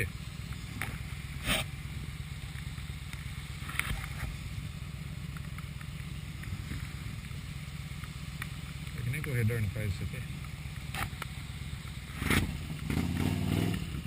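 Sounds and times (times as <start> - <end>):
motorcycle engine and wind rumble: 0.0 - 14.0.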